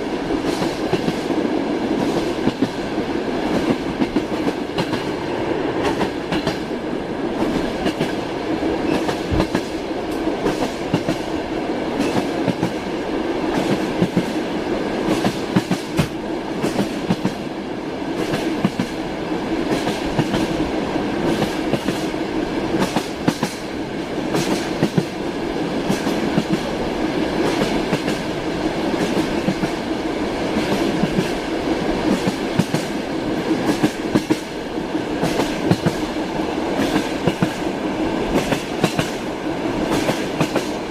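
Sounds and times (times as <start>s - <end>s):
train rumble: 0.0s - 40.9s
train wheels clacking: 0.4s - 2.8s, 3.4s - 6.7s, 7.4s - 8.2s, 8.8s - 12.9s, 13.5s - 17.5s, 18.2s - 19.0s, 19.6s - 20.6s, 21.2s - 23.7s, 24.3s - 25.2s, 27.4s - 28.3s, 28.9s - 29.8s, 30.5s - 40.9s.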